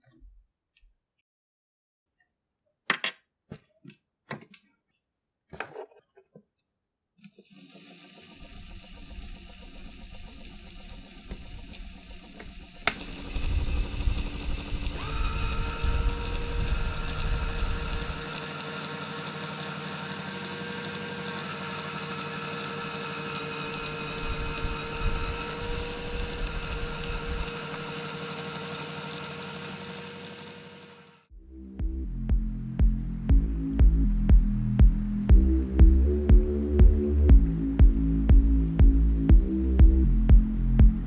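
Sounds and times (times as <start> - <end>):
toy motor whirring whine: 7.4 - 31.3
low rumbles: 31.3 - 41.0.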